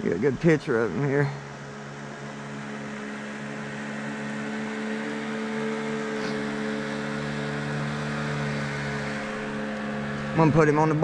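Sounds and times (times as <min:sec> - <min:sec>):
motorboat engine humming: 0:00.0 - 0:11.0.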